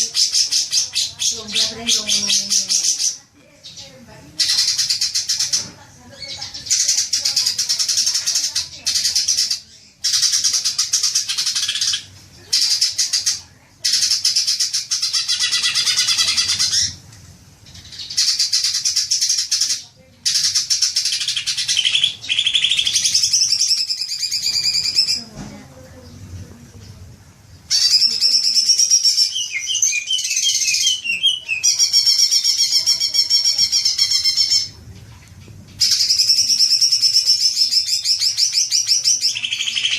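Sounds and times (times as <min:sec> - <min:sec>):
bird chattering and whistling: 0:00.0 - 0:17.0, 0:17.7 - 0:25.3, 0:27.7 - 0:34.8, 0:35.8 - 0:39.9.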